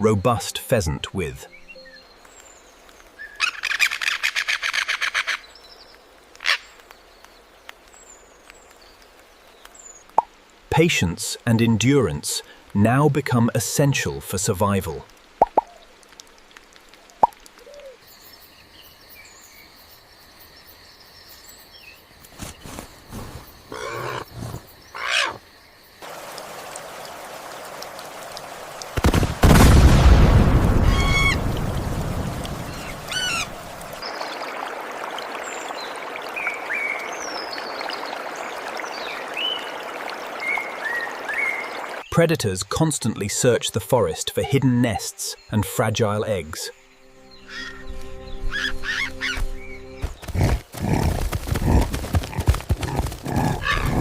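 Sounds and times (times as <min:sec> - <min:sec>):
rain hissing: 0:05.8 - 0:18.5, 0:25.9 - 0:42.1
thunder crack and rumble: 0:29.0 - 0:33.0.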